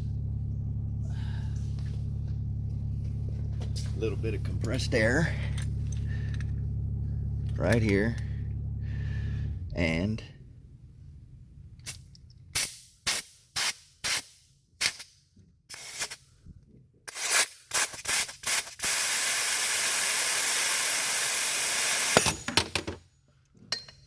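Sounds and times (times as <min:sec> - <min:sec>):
compressed air blow gun hissing: 0:17.2 - 0:22.4.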